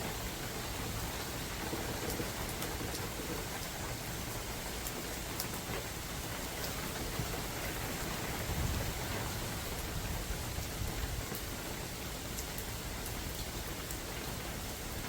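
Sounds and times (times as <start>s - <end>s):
rain falling in forest: 0.0s - 15.0s
low wind rumble: 8.2s - 11.8s.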